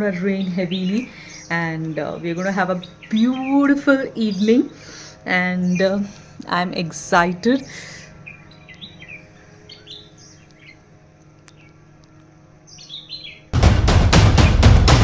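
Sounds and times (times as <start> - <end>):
birds chirping: 0.0 - 15.0
loud rapid beats: 13.6 - 15.0.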